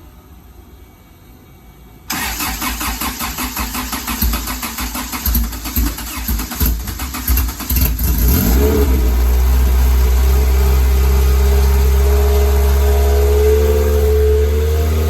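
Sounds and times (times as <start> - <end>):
engine cranking on starter: 2.1 - 10.2
engine running: 2.1 - 15.0.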